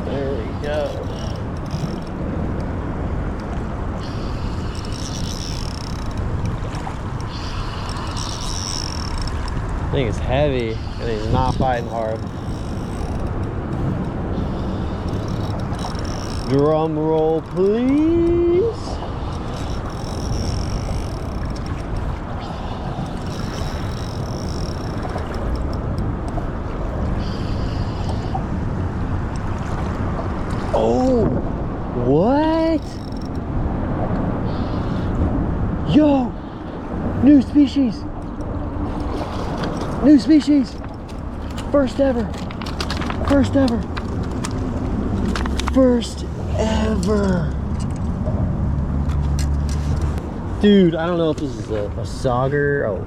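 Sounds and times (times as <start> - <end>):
fishing reel whirring: 0.0 - 2.7, 4.0 - 28.3, 32.6 - 33.5
river noise: 0.0 - 53.0
wind rumble on microphone: 0.0 - 53.0.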